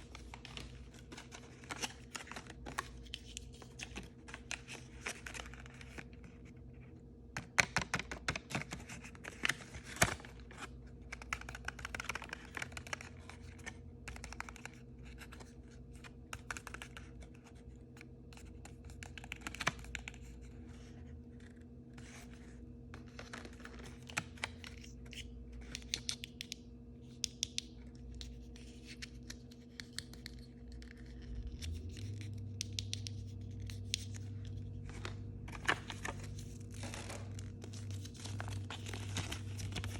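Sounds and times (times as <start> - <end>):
packaging scratching and tearing: 34.6 - 39.9.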